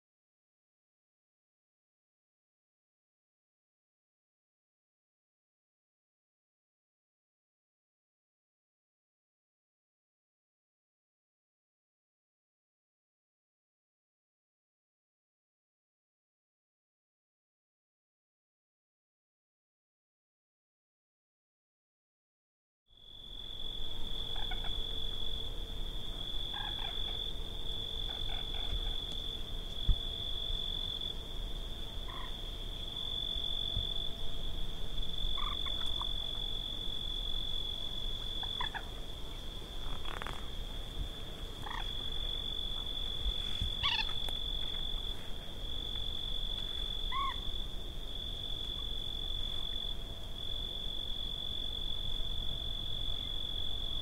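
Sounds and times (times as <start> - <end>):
high-pitched insect trill: 23.0 - 54.0
low rumble of wind: 23.0 - 54.0
short animal calls: 26.5 - 27.3, 28.0 - 29.2, 32.1 - 32.4, 35.4 - 36.2, 38.4 - 39.0, 41.6 - 42.1, 43.4 - 44.3, 47.1 - 47.6.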